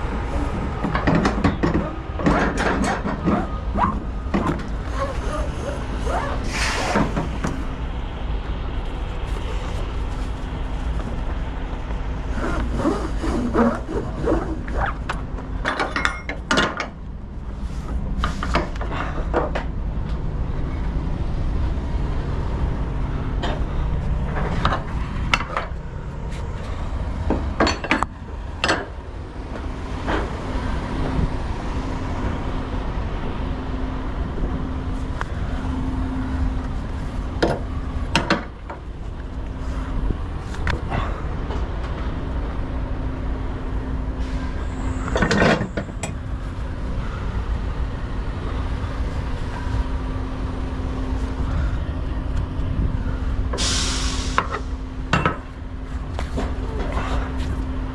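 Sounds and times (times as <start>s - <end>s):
engine rumbling: 0.0s - 57.9s
clanks and knocks: 0.8s - 5.0s, 15.1s - 17.0s, 27.3s - 29.0s, 45.1s - 46.2s.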